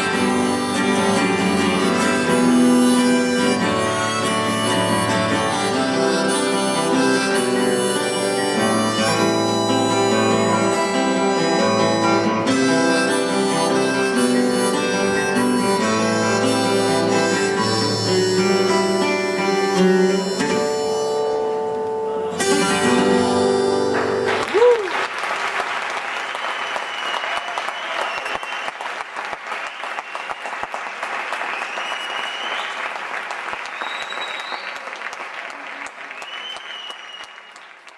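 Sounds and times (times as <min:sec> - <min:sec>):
harmonica: 0:00.0 - 0:24.8
live band music: 0:00.0 - 0:24.9
guitar: 0:00.0 - 0:25.0
audience applauding: 0:23.8 - 0:37.9.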